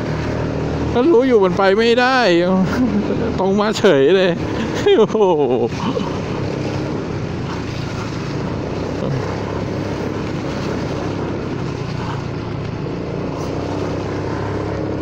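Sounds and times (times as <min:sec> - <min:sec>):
road noise: 0:00.0 - 0:15.0
scooter engine droning: 0:00.0 - 0:15.0.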